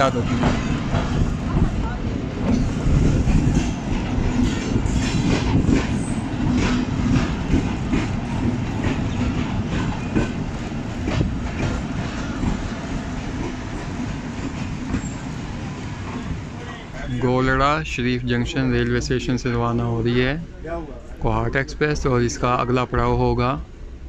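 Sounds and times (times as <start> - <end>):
wheels clacking over rail joints: 0.0 - 17.4
train low rumble: 0.0 - 24.0.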